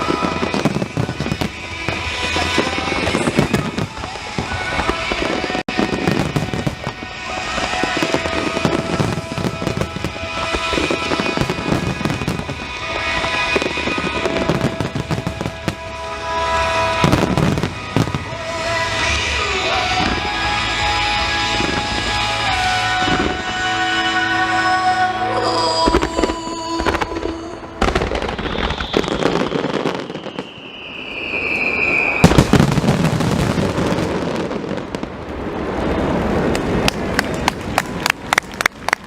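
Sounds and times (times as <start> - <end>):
fireworks bursting with crackling: 0.0 - 24.2, 25.3 - 39.0
music over loudspeakers: 0.0 - 28.0.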